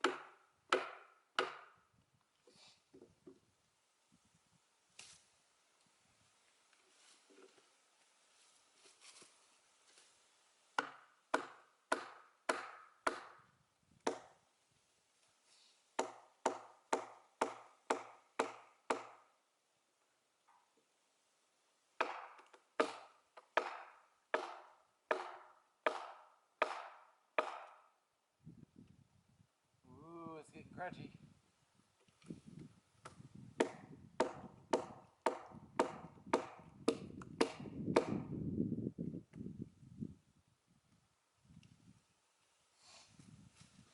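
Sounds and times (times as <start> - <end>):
splitting tool striking log: 22.0 - 27.7, 33.6 - 38.2.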